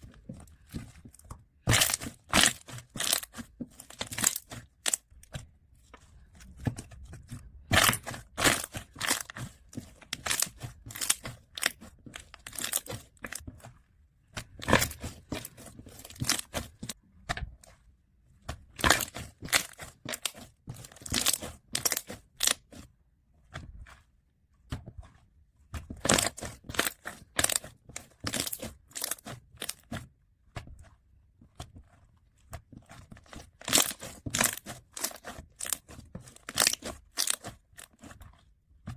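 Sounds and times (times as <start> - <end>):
slime squished by hand: 6.2 - 13.4, 25.8 - 30.0.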